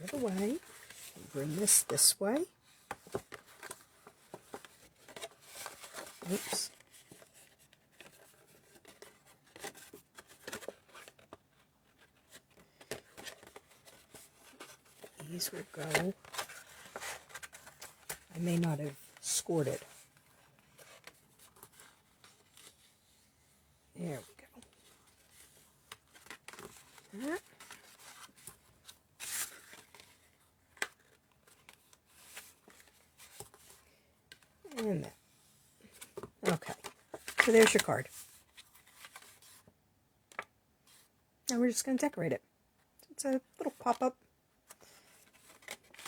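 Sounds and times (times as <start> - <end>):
cardstock rustling: 0.0 - 23.2, 24.2 - 33.8, 35.9 - 39.7.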